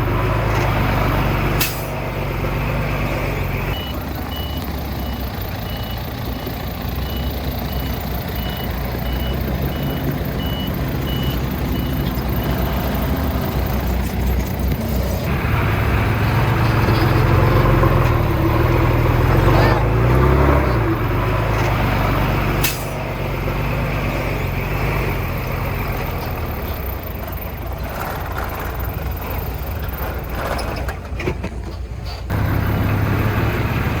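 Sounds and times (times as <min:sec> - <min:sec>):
diesel engine running: 0:00.0 - 0:34.0
backup alarm beeping: 0:03.7 - 0:06.1, 0:06.9 - 0:13.2.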